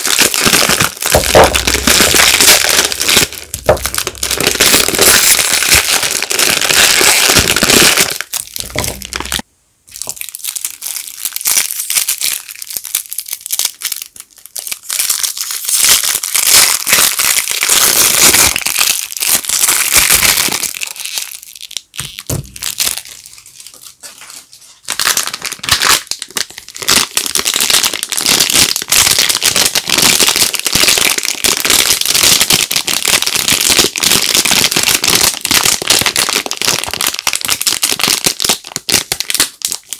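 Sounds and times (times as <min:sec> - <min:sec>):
wrappers crinkling and tearing: 0:00.0 - 0:39.9.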